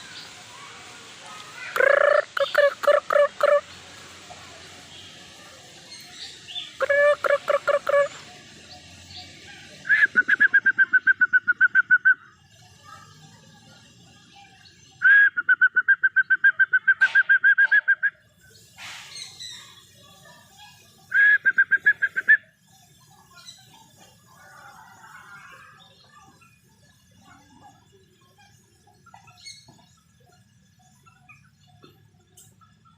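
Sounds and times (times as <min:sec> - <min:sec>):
bird calling rapid repeated notes: 0:01.7 - 0:03.7, 0:06.8 - 0:08.2.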